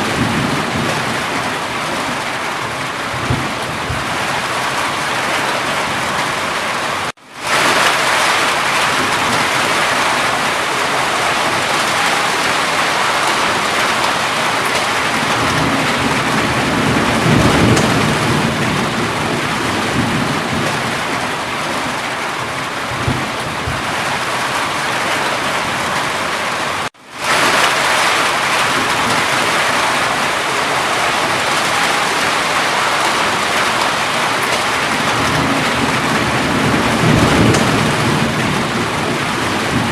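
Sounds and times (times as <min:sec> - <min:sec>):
low rumble of thunder: 0:00.0 - 0:04.5, 0:14.8 - 0:24.2, 0:31.2 - 0:39.9
heavy rainfall: 0:00.0 - 0:39.9.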